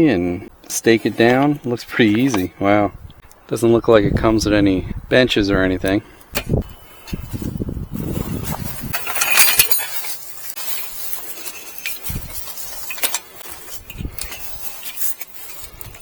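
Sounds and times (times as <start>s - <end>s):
greenhouse kit clinking and rustling: 0.0s - 2.7s, 5.9s - 16.0s.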